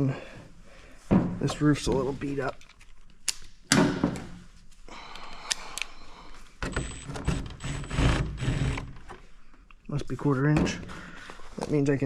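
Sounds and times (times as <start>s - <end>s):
knocks and rattles of handling: 1.0s - 4.5s.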